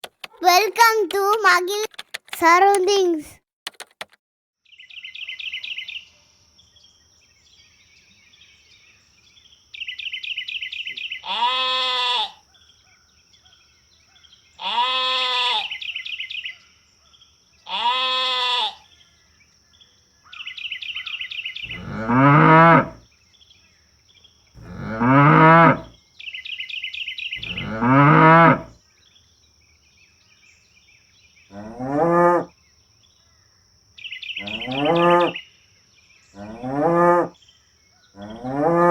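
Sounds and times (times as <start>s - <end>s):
cattle mooing: 21.7s - 23.0s, 24.6s - 25.9s, 27.4s - 28.7s
insects chirping: 32.6s - 36.8s.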